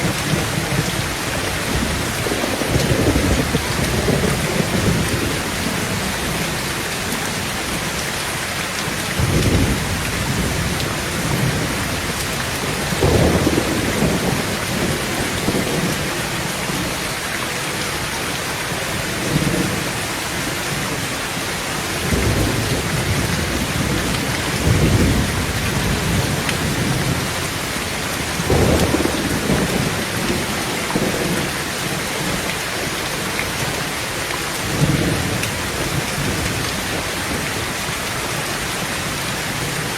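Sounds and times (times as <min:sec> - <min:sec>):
low thunder rumbles: 0:00.0 - 0:08.0, 0:08.9 - 0:17.0, 0:21.8 - 0:32.9
heavy rain on a tin roof: 0:00.0 - 0:39.9.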